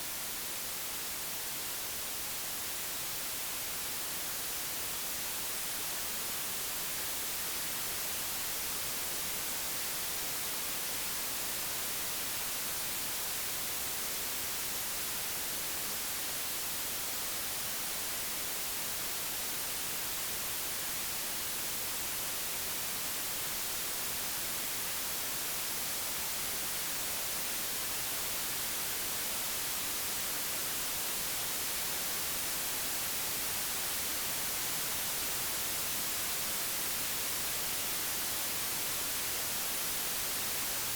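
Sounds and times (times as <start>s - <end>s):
white noise hiss: 0.0s - 40.9s.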